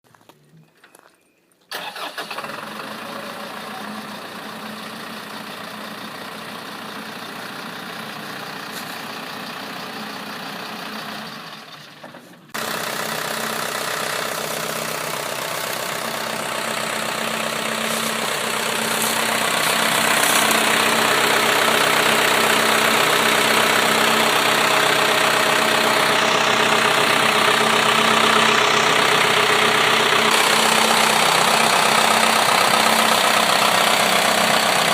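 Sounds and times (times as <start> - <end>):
truck engine idling: 1.7 - 34.9.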